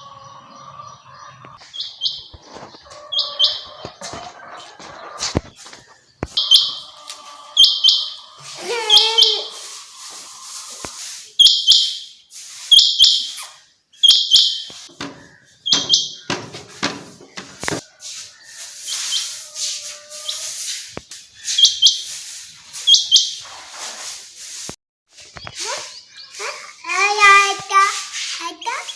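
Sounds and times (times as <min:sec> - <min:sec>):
quail calling: 0:02.9 - 0:03.9, 0:06.3 - 0:11.9.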